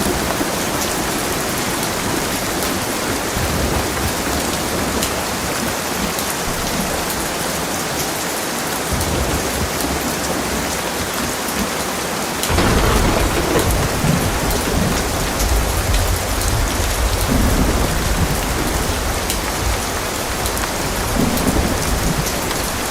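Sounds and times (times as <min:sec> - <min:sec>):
heavy rain pouring: 0:00.0 - 0:22.9
thunder rumble: 0:12.5 - 0:22.9.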